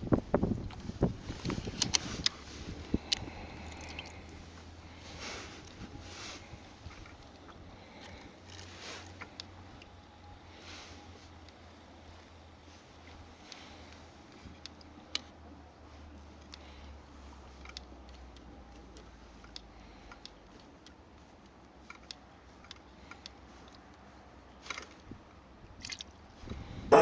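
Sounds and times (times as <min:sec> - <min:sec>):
faint light clicks and taps: 0:17.6 - 0:23.8.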